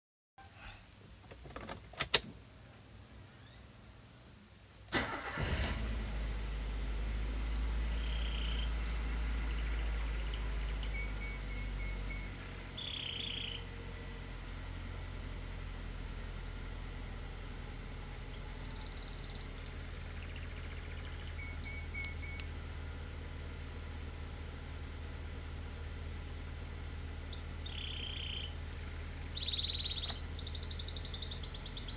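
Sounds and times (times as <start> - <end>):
birds chirping: 3.3 - 3.9, 7.3 - 13.8, 18.2 - 22.6, 27.3 - 31.9
car engine idling: 4.9 - 31.9.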